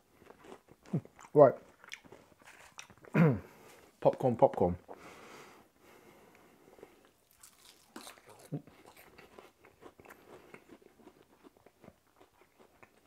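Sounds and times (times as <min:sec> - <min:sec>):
person crunching crisp food: 0:00.2 - 0:03.1, 0:07.0 - 0:13.0.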